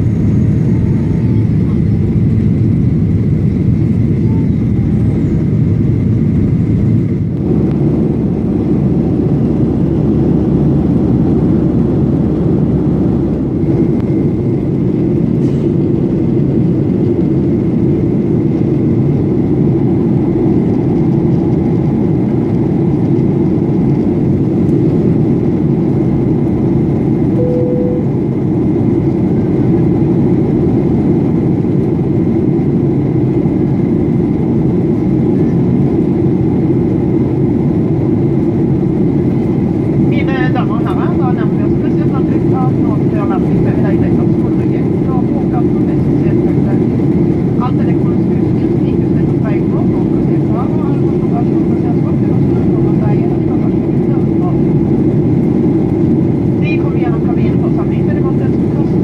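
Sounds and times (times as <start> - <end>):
airplane cabin roar: 0.0 - 59.0
faint steady whine: 27.3 - 28.7
short beep: 27.4 - 28.2.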